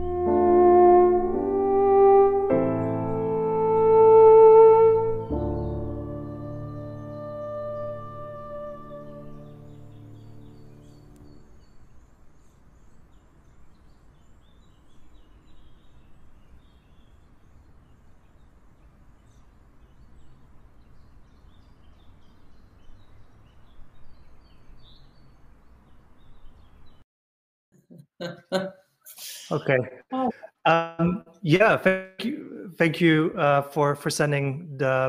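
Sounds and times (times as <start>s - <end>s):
small birds chirping: 5.2s - 27.0s
low outdoor background noise: 6.8s - 27.0s.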